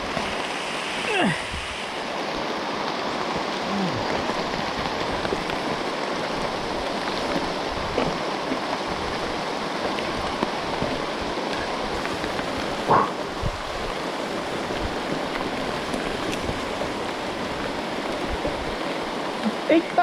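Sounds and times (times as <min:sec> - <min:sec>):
heavy rain falling: 0:00.0 - 0:20.0
brief loud knock: 0:12.9 - 0:13.2.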